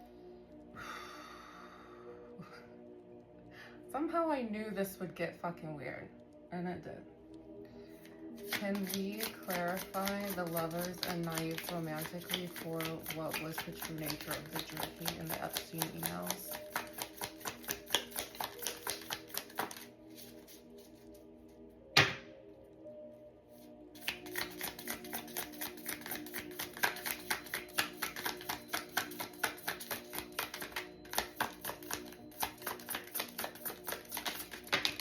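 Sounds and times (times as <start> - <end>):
soft background music: 0.0 - 35.0
cards being shuffled: 8.4 - 21.2, 24.0 - 35.0
sharp knock: 22.0 - 22.3.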